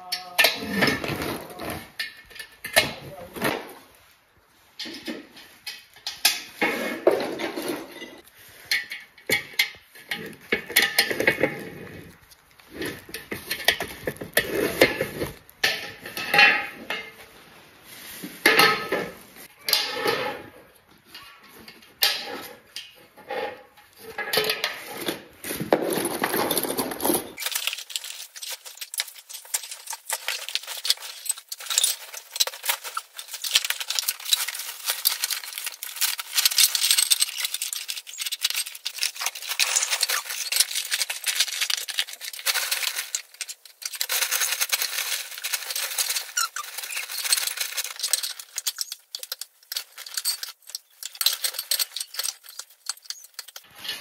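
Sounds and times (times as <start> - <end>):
metal parts clinking and rattling: 4.8 - 17.2, 21.1 - 54.0
light clicks and rattles: 26.7 - 54.0.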